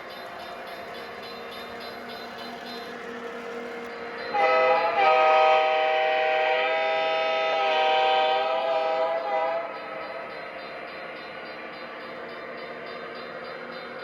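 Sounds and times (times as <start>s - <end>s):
multi-chime train horn: 1.2s - 10.8s.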